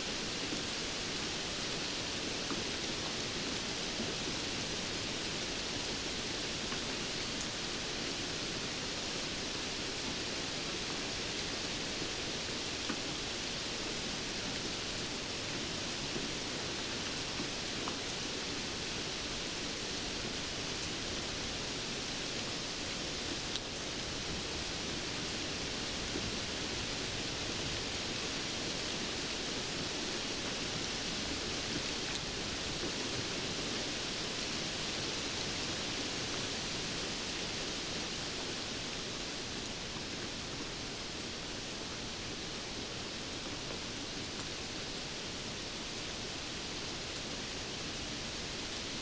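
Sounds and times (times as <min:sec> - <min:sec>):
steady rain hiss: 0:00.0 - 0:49.0.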